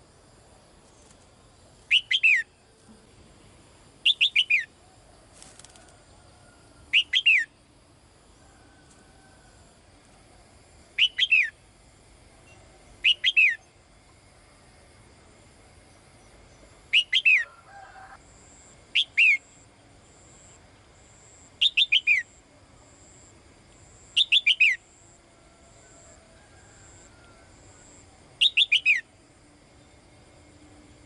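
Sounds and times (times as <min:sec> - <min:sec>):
songbird calling: 0:01.9 - 0:02.7, 0:04.0 - 0:05.0, 0:06.9 - 0:07.6, 0:10.9 - 0:11.6, 0:12.4 - 0:13.8, 0:16.2 - 0:17.8, 0:18.9 - 0:19.7, 0:21.2 - 0:22.4, 0:24.1 - 0:24.9, 0:27.0 - 0:29.2.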